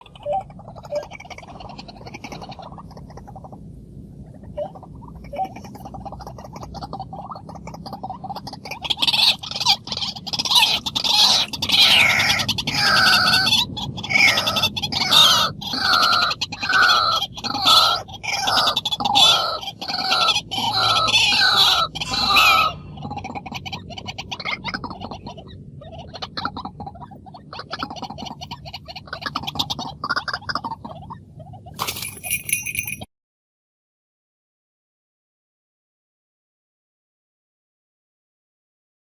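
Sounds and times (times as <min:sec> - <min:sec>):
bird calling harshly: 0:04.5 - 0:33.0.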